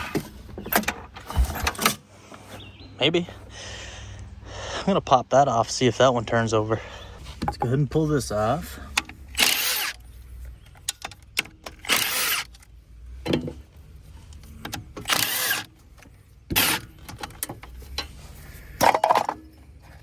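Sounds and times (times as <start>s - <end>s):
handling clicks and knocks: 10.5s - 20.0s.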